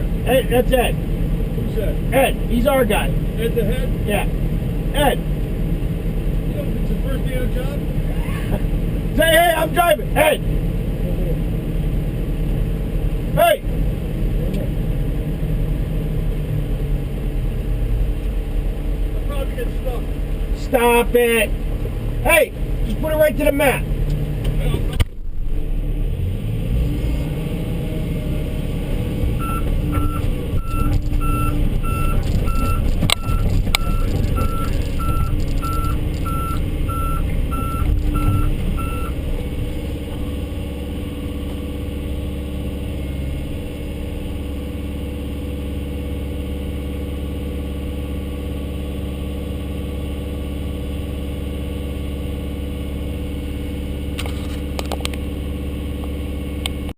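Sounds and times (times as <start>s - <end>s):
heavy diesel engine rumble: 0.0s - 56.9s
vehicle backup alarm beeping: 29.4s - 39.2s.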